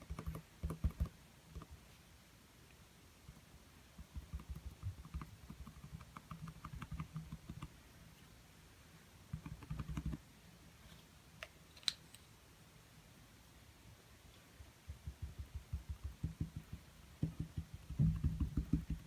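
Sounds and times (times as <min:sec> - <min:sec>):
paintbrush tapping on canvas: 0:14.8 - 0:19.0.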